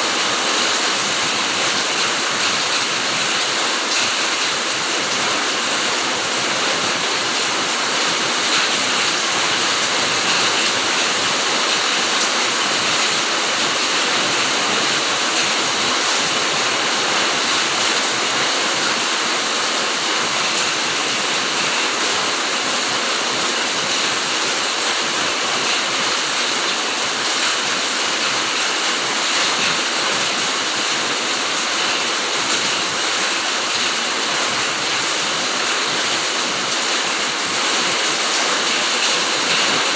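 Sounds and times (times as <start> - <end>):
heavy rain on foliage: 0.0 - 39.9.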